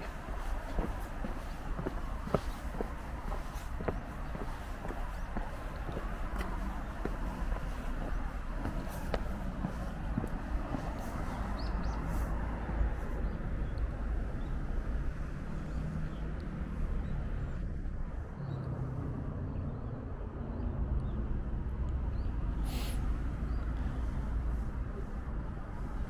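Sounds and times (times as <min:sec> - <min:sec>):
brief hiss: 0:22.7 - 0:23.1.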